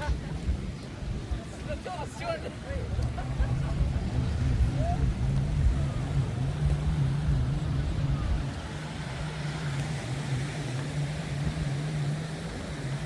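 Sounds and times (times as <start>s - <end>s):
engine droning: 0.0s - 13.0s
low rumble: 2.7s - 12.6s.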